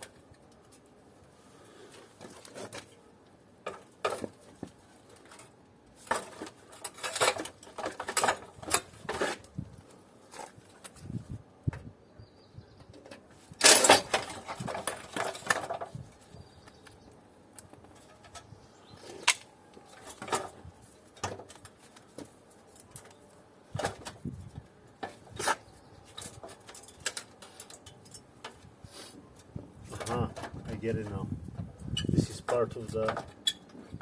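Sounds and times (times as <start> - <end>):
metal parts clinking and clattering: 6.1 - 9.4, 13.6 - 16.1, 25.3 - 28.6.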